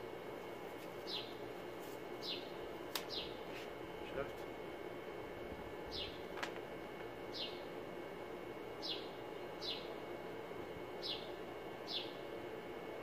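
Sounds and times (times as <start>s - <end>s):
low background hum: 0.0s - 13.0s
bird chirping: 1.0s - 1.4s, 2.2s - 3.4s, 5.9s - 6.2s, 7.3s - 7.7s, 8.8s - 10.0s, 11.0s - 12.2s.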